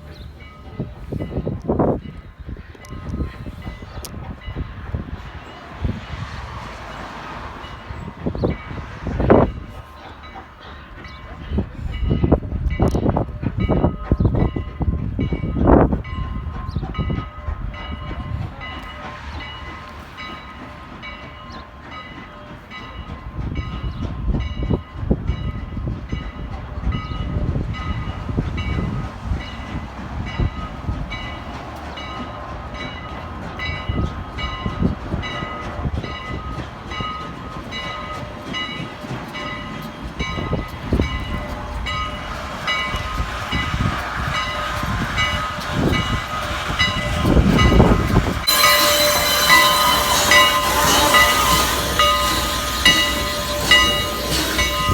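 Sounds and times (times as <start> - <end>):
steam locomotive train rumbling: 0.0 - 54.9
bell ringing: 44.4 - 54.9.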